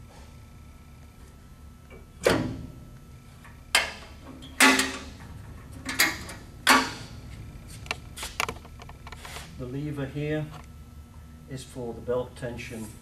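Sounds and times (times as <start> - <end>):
steel door clanking: 3.8 - 7.2.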